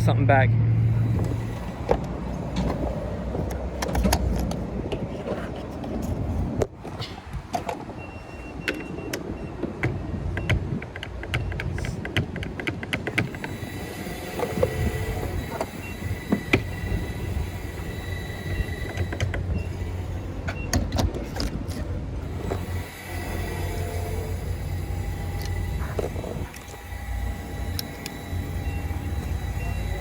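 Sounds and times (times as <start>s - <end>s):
car engine and road rumble: 0.0s - 30.0s
sharp clicks and knocks: 1.2s - 5.1s, 8.6s - 13.7s, 18.6s - 19.6s, 20.4s - 22.7s.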